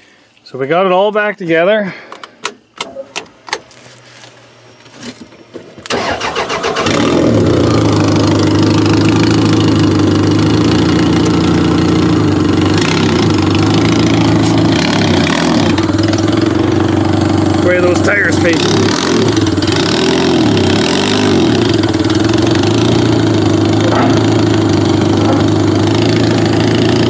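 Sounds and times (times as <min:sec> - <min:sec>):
car engine idling: 0:02.1 - 0:27.0
starter motor cranking: 0:05.8 - 0:16.6.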